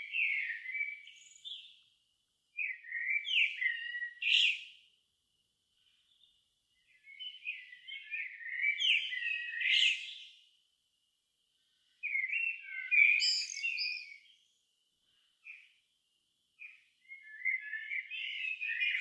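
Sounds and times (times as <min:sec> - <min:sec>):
songbird warbling: 0:00.0 - 0:01.7, 0:12.0 - 0:14.4.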